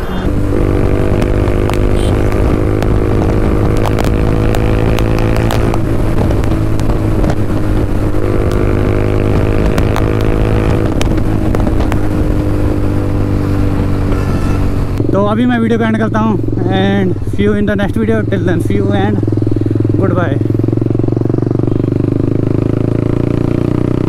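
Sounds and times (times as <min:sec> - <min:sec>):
motorcycle engine running loud: 0:00.0 - 0:24.0.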